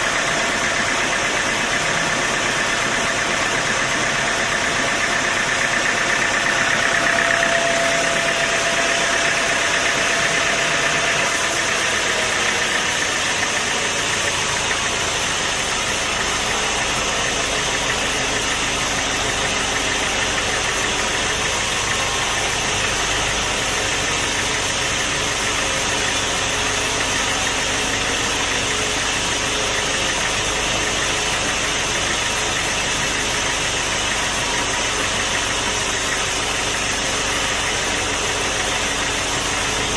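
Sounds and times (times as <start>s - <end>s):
sawmill machinery drone: 0.0s - 39.9s
faint whine: 3.7s - 29.8s.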